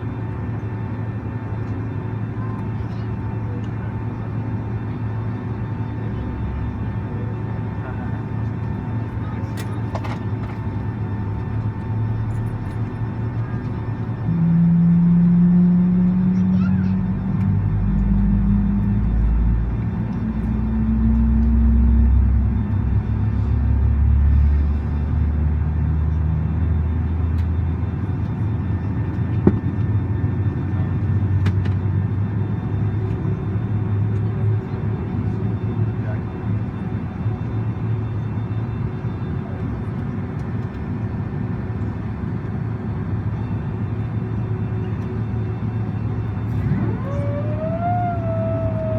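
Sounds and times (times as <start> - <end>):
jet engines humming: 0.0 - 48.9
low rumble: 46.4 - 48.9.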